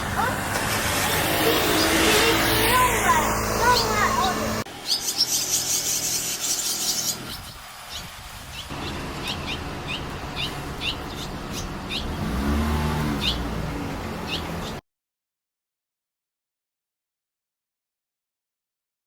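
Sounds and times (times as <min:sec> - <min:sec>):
low engine hum: 0:08.6 - 0:14.8.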